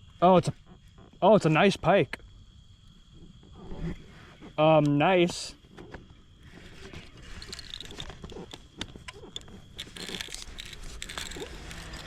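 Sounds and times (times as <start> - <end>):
fishing reel drag clicking: 9.8 - 12.0.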